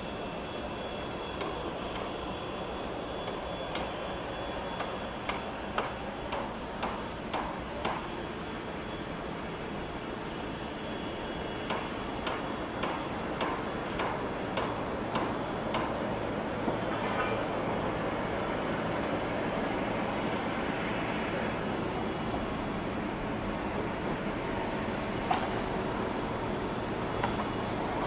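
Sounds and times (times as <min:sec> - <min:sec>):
jet engine noise: 0:00.0 - 0:28.0
burst of hiss: 0:16.9 - 0:17.8.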